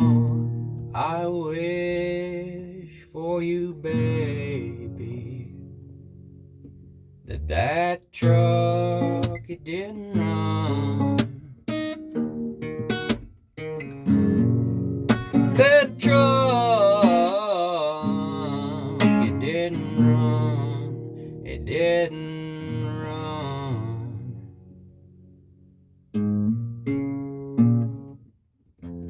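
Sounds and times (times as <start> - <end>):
person singing wordless line: 0.0 - 5.8, 7.3 - 11.6, 15.4 - 24.5
acoustic guitar strumming: 0.0 - 29.0.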